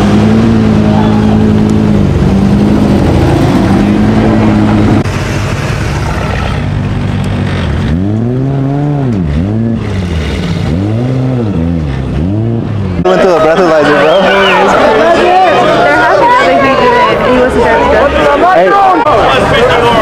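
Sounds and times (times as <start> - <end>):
sports car engine revving: 0.0 - 13.1
car engine running: 0.0 - 20.0.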